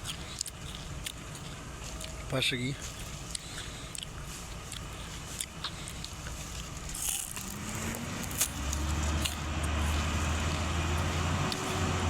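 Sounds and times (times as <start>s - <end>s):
diesel engine revving and droning: 2.9s - 12.0s.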